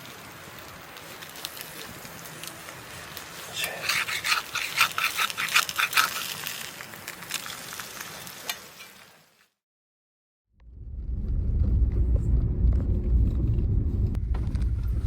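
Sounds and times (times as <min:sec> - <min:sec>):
campfire sizzling and crackling: 0:00.0 - 0:09.6.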